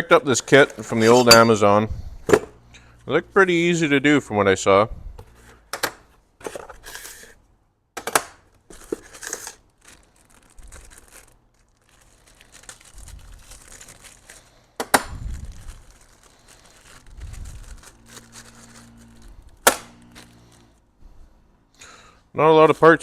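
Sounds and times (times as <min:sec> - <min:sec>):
packaging crinkling and tearing: 0:08.6 - 0:20.8.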